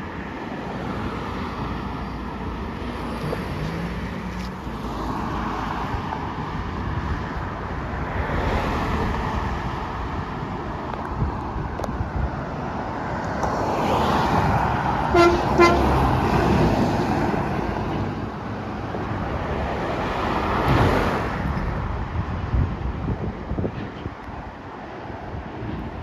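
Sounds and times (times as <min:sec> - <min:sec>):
vehicles passing on road: 0:00.0 - 0:26.0
truck horn toots: 0:15.1 - 0:16.2.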